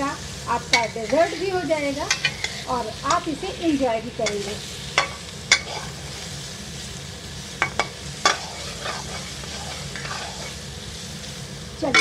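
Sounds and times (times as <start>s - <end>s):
fruit sizzling in a pan: 0.0s - 12.0s
metal spatula scraping a pan: 0.7s - 3.3s, 4.2s - 6.2s, 7.6s - 10.6s.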